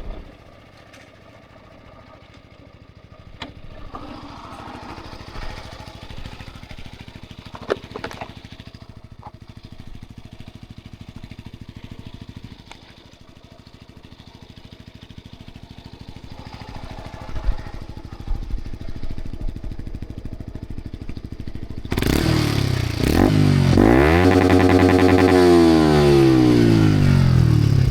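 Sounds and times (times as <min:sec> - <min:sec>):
motorcycle engine idling: 0:00.0 - 0:27.9
loud sweeping pitched sound: 0:22.4 - 0:27.9.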